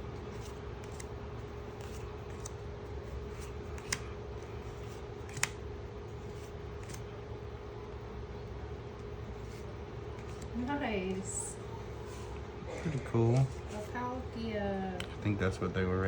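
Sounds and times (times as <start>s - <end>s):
steady low hum: 0.0s - 16.0s
cards rustling: 0.1s - 7.1s, 9.0s - 14.0s.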